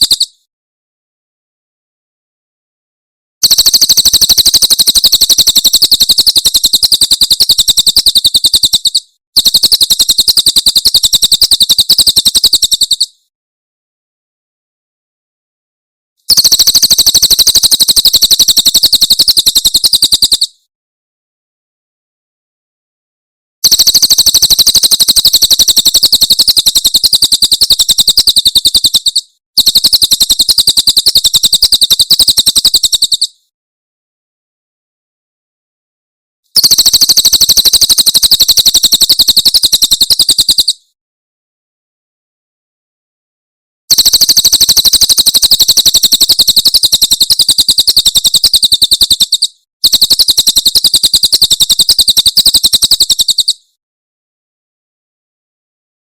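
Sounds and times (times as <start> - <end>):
bird high-pitched trill: 0.0 - 0.4, 3.4 - 13.2, 16.3 - 20.6, 23.6 - 33.4, 36.6 - 40.8, 43.9 - 53.7.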